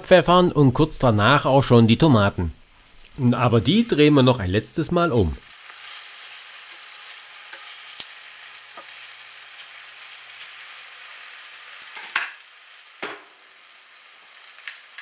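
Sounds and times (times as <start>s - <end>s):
food sizzling in oil: 0.6s - 15.0s.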